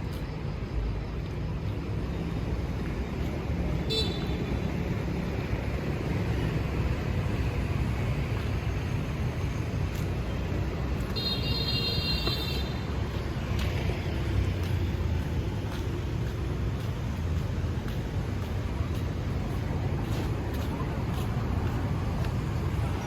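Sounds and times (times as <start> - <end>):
street traffic rumble: 0.0 - 23.0
vehicle horn beeps: 3.8 - 4.5, 11.1 - 12.9.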